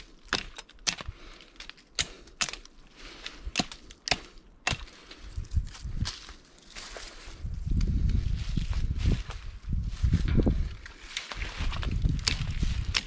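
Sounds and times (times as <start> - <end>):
dry wood cracking: 0.0 - 7.0, 10.4 - 13.0.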